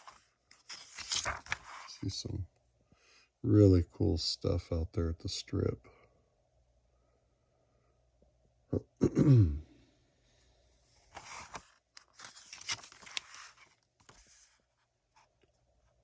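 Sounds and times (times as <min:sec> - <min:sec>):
magazine pages rustling: 0:00.0 - 0:02.2, 0:11.0 - 0:15.4
person clearing throat: 0:08.8 - 0:09.7.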